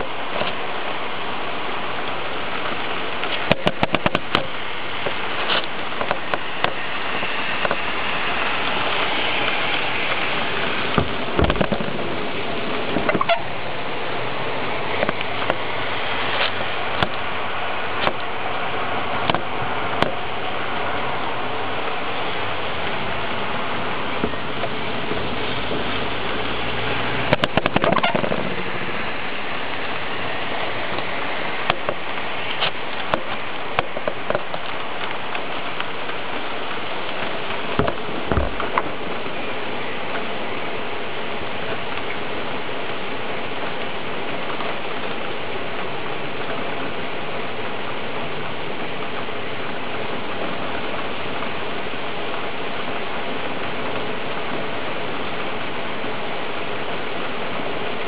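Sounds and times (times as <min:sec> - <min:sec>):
steady rain falling: 0:00.0 - 0:58.0
sharp ticks and knocks: 0:03.2 - 0:06.8.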